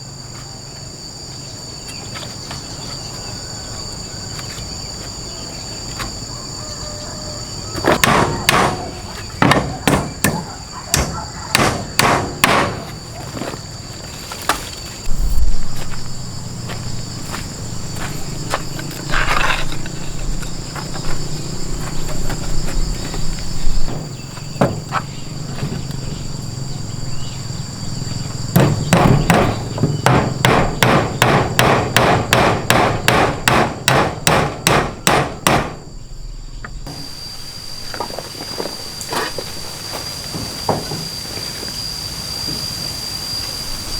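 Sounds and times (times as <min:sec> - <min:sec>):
high insect drone: 0:00.0 - 0:43.9
hammer blows: 0:07.8 - 0:13.0, 0:28.5 - 0:35.9.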